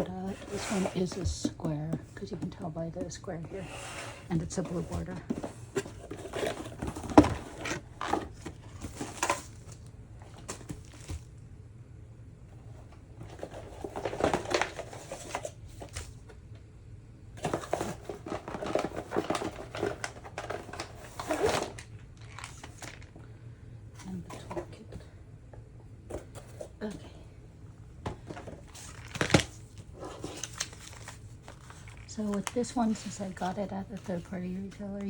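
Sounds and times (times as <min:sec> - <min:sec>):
packaging crinkling and rustling: 0:00.0 - 0:11.4, 0:12.8 - 0:16.3, 0:17.4 - 0:23.2, 0:28.0 - 0:35.0.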